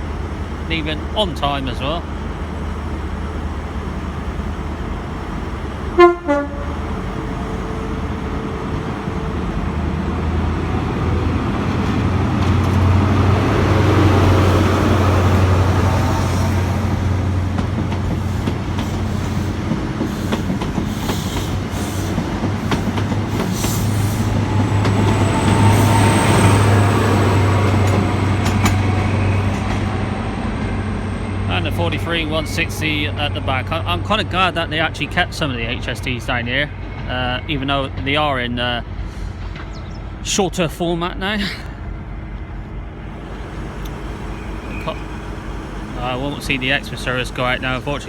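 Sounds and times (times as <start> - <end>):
diesel train engine drone: 0.0 - 48.0
train horn toot: 5.9 - 7.0
thin high whine: 43.2 - 47.3.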